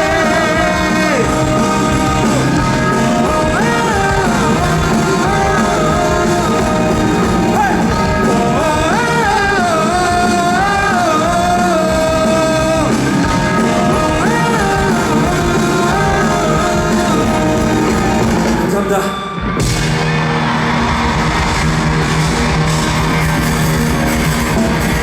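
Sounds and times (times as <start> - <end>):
high wordless melody line: 0.0 - 19.2
live rock band playing: 0.0 - 25.0.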